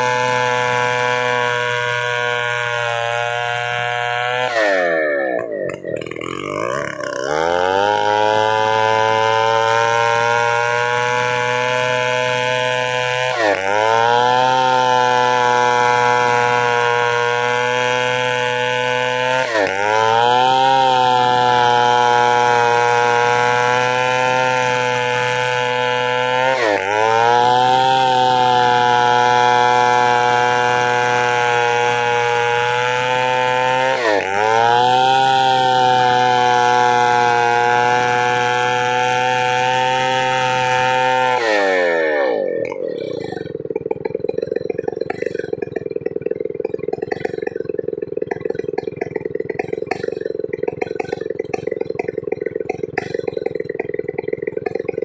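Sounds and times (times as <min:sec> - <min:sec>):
chainsaw engine revving: 0:00.0 - 0:55.0.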